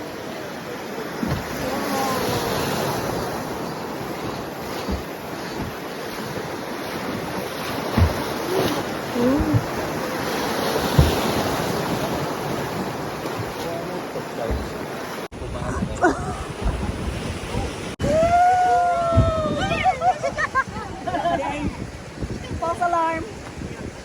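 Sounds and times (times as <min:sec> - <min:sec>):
river water rushing: 0:00.0 - 0:15.4
wind buffeting microphone: 0:01.2 - 0:24.0
short low thumps: 0:09.1 - 0:10.0, 0:14.5 - 0:18.4, 0:19.0 - 0:23.6.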